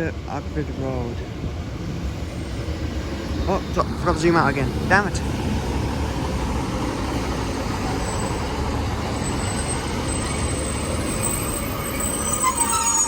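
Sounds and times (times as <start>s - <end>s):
diesel train heavy rumble: 0.0s - 13.0s
squealing tones: 7.0s - 13.0s.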